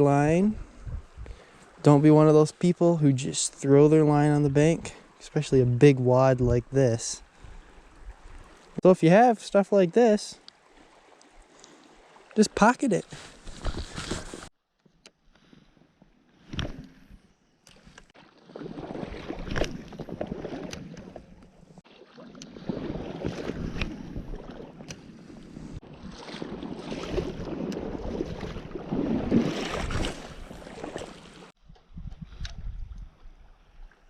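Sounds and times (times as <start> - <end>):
water sloshing and splashing: 7.2 - 8.8, 10.4 - 14.5, 16.4 - 31.6.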